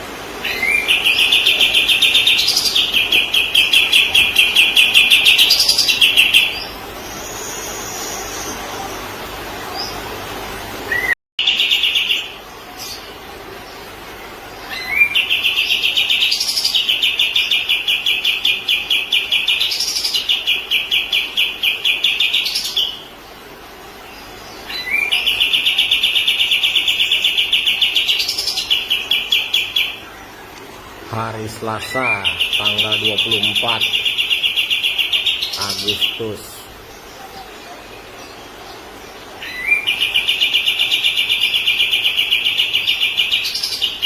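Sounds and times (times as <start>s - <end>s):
songbird singing high trills: 31.2s - 36.7s.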